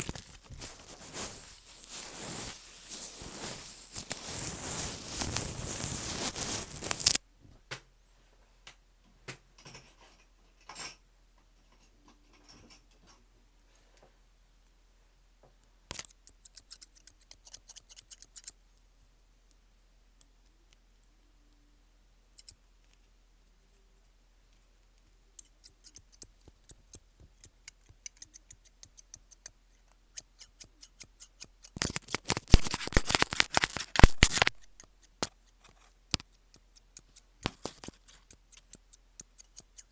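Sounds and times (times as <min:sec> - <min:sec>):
crisp clicks and crackles: 0:00.0 - 0:07.2, 0:31.4 - 0:39.9.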